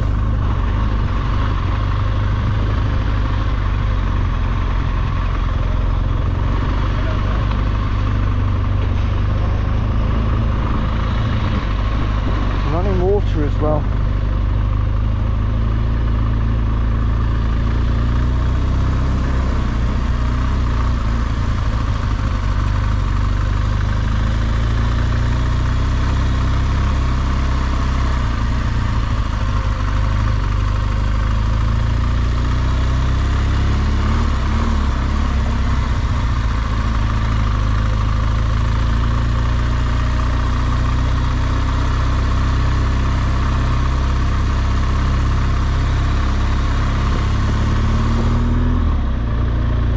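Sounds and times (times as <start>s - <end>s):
motorcycle engine running: 0.0s - 49.9s
wind and road noise: 0.0s - 49.9s.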